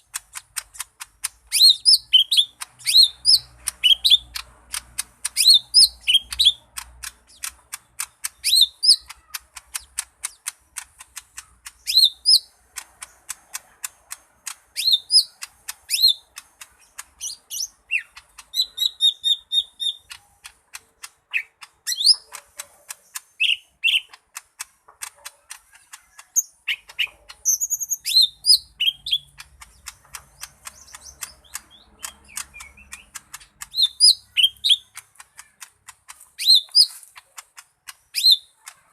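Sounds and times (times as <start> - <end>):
bird ticking chips: 0.0 - 38.9
bird trills: 25.6 - 37.4.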